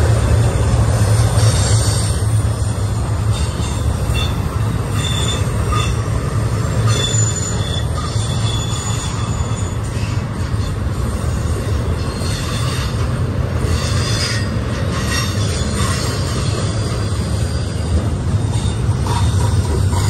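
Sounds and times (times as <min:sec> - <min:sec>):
high wheel squeals: 0:03.2 - 0:18.9.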